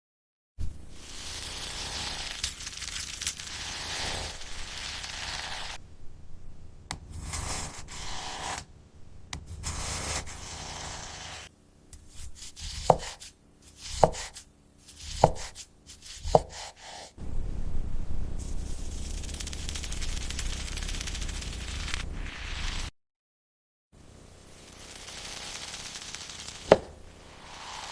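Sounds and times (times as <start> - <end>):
knife cutting through cake: 9.5 - 11.4, 12.0 - 17.1.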